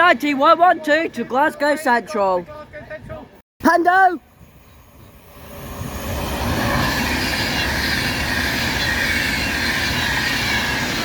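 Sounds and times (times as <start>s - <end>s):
electric train passing: 4.2s - 11.0s.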